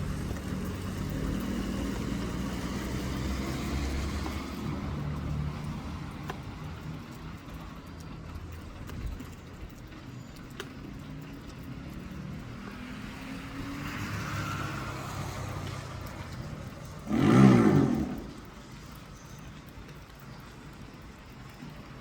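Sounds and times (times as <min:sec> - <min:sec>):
vehicle passing close: 0:00.0 - 0:06.2, 0:11.7 - 0:18.7
vehicles passing on road: 0:00.0 - 0:22.0.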